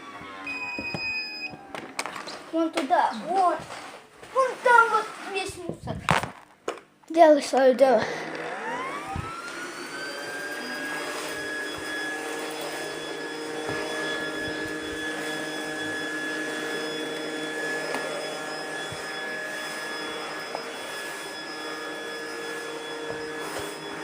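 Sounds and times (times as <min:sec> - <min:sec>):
robot vacuum motor whirring: 0:08.0 - 0:24.0.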